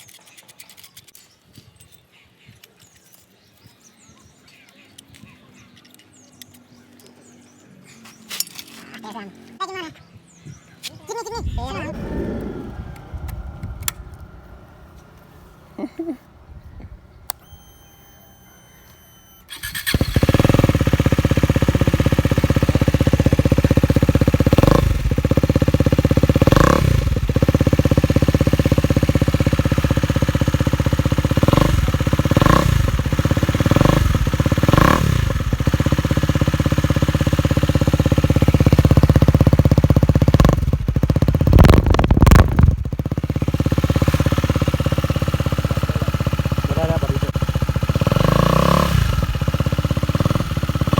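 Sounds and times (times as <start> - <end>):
loud motorcycle engine revving: 11.8 - 15.3, 19.6 - 50.9.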